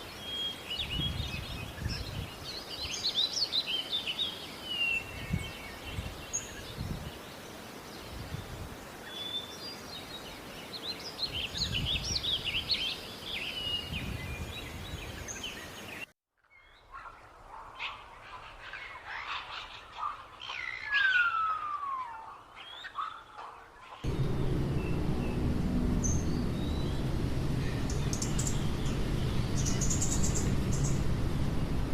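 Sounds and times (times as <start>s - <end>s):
small birds chirping and twittering: 0.0s - 31.9s
steady background noise: 23.6s - 31.9s.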